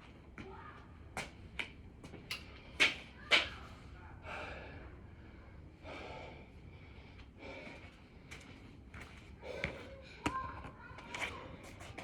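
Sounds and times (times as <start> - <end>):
man breathing hard: 4.2 - 8.6.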